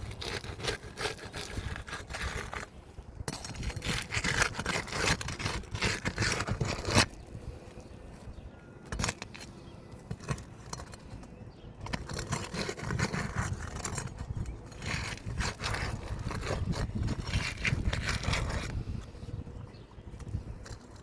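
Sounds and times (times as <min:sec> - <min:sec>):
scraping on roof shingles: 0:03.3 - 0:07.3, 0:08.9 - 0:19.2.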